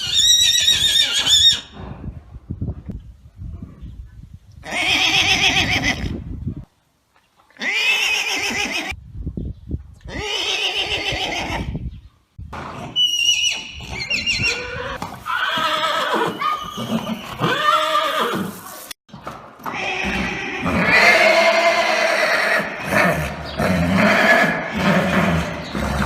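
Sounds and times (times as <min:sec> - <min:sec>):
horse shrill squeals: 0:00.0 - 0:01.8, 0:13.0 - 0:18.6, 0:19.7 - 0:23.2
horses neighing and whinnying: 0:00.0 - 0:01.8, 0:04.6 - 0:06.2, 0:07.5 - 0:09.0, 0:10.0 - 0:11.8, 0:12.6 - 0:18.9, 0:19.6 - 0:26.0.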